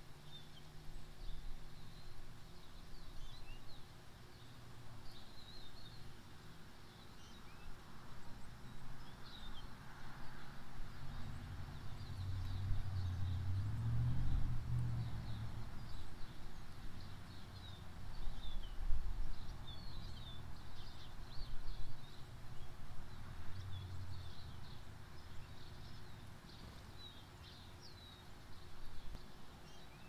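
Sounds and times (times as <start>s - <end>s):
birds chirping: 0.0s - 14.4s, 15.0s - 30.0s.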